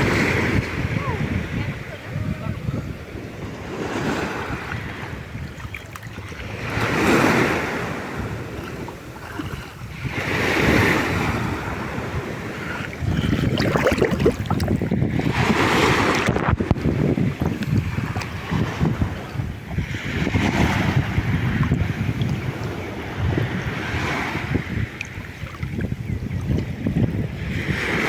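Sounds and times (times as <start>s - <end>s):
sea waves surging: 0.0s - 25.6s
wind buffeting microphone: 0.0s - 28.0s.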